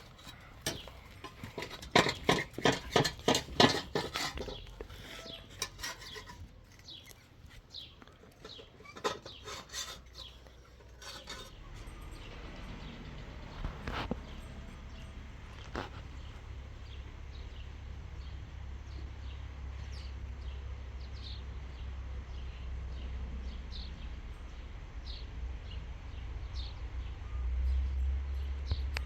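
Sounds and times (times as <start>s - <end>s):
small bird chirping: 4.4s - 13.6s.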